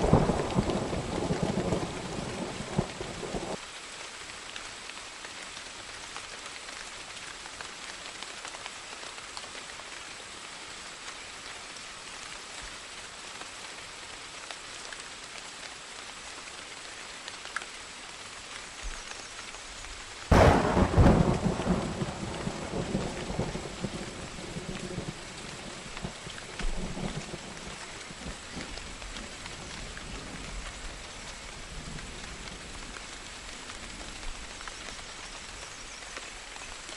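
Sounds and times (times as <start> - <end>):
steady rain falling: 0.0 - 36.9
thunder rumbling: 20.3 - 30.6.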